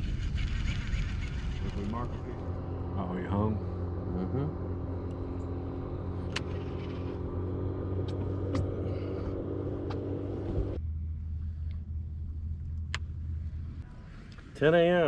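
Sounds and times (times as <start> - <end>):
outboard motor humming: 0.0 - 13.8.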